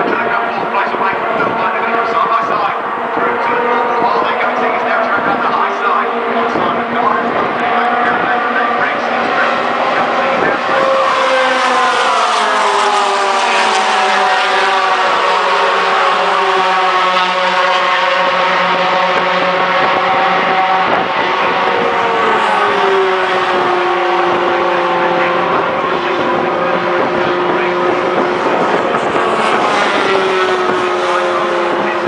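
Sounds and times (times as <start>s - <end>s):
truck engines running hard: 0.0s - 32.0s.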